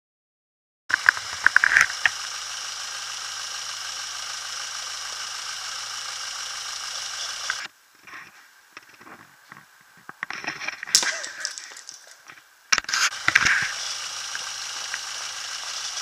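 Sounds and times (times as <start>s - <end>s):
car engine idling with rattle: 0.9s - 7.7s, 13.1s - 16.0s.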